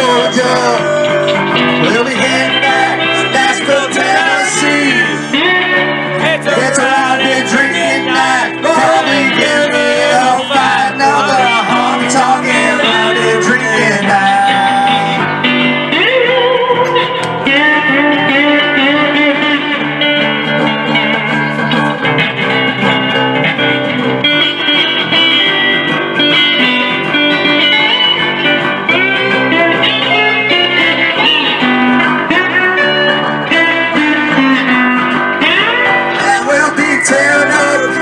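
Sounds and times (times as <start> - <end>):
country-rock band playing: 0.0 - 38.0
lead guitar solo: 0.0 - 38.0.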